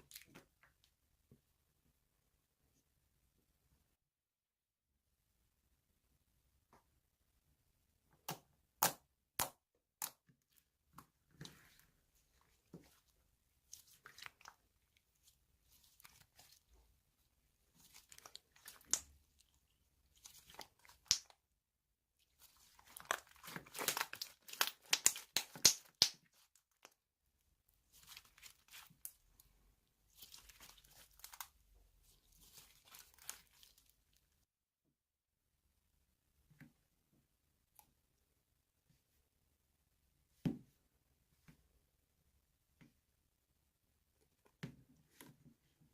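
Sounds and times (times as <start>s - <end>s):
slime squishing and crackling: 17.7s - 21.4s, 22.3s - 26.9s, 30.1s - 34.2s.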